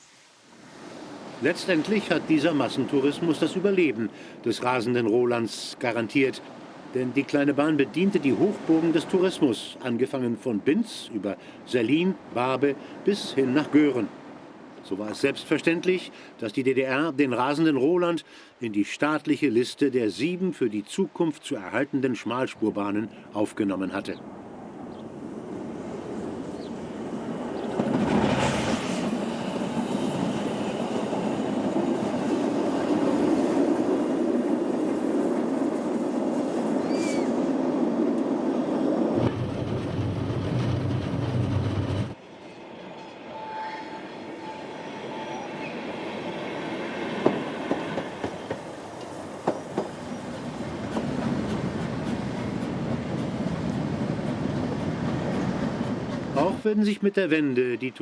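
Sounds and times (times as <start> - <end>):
train coaches rumbling: 25.5 - 37.9, 39.1 - 43.3, 45.1 - 56.6
wheel squeal: 39.2 - 42.2
wheels clicking over rail joints: 39.2 - 42.2.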